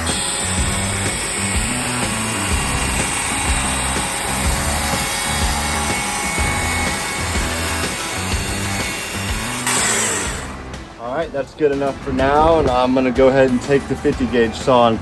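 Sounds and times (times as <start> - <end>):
chainsaw cutting wood: 0.0 - 10.9
background music with bass line: 0.0 - 15.0.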